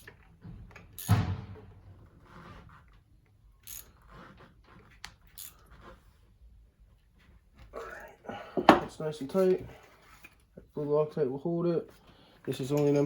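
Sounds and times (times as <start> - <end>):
wrench metal handling: 3.6 - 4.0, 12.5 - 13.0.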